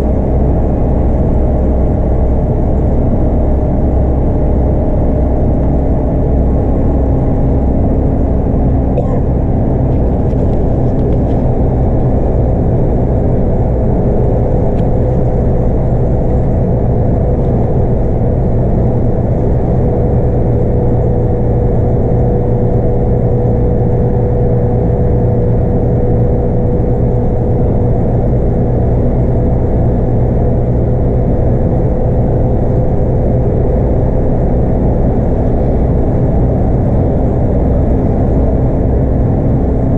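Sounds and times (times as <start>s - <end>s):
road noise: 0.0s - 22.0s, 28.0s - 39.9s
steady whine: 0.0s - 23.0s
bus engine running: 0.0s - 39.9s.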